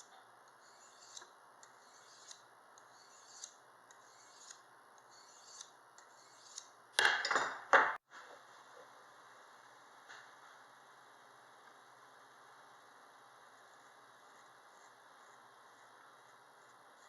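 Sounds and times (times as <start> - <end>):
knife scraping on sharpener: 0.5 - 6.7.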